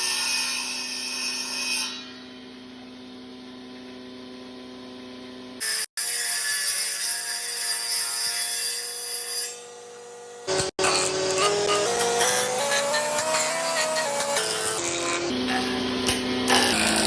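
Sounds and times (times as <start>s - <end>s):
power tool cutting wood: 0.0s - 2.2s, 5.6s - 17.0s.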